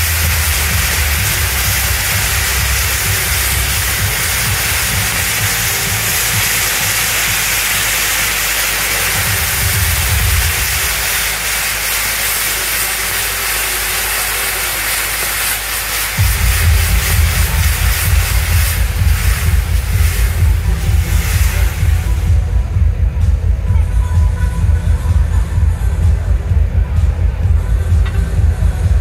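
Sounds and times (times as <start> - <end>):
firework wheel hissing: 0.0 - 22.8
low rumble: 16.2 - 29.0.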